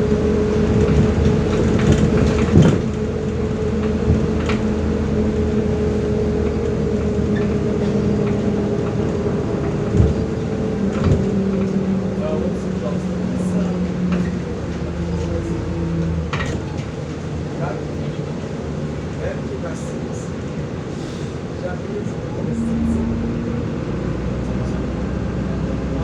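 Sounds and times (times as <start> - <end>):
bus body knocking over bumps: 0.0 - 20.8
bus engine drone: 0.0 - 26.0.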